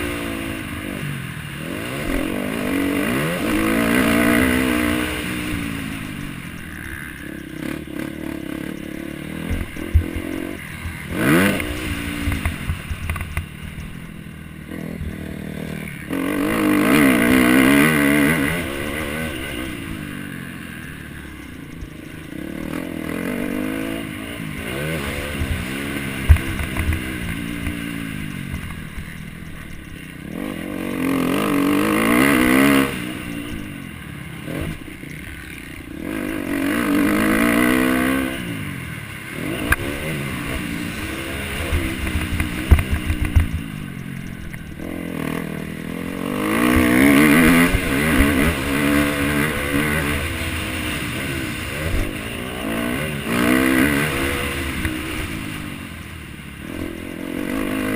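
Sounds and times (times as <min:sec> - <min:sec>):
motocross bike engines revving: 0:00.0 - 0:57.9.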